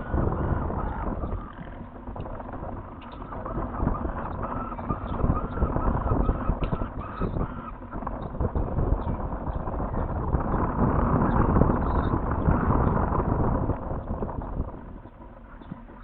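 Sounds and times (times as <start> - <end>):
falcon chick calling: 0.0 - 1.9, 3.0 - 8.4
wind on microphone: 0.0 - 16.0.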